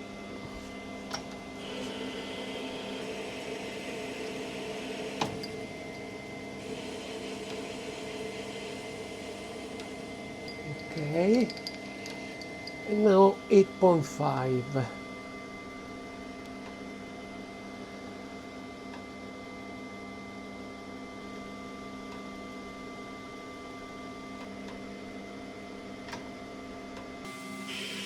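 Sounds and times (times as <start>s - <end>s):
machine-tool motor humming: 1.6s - 15.1s.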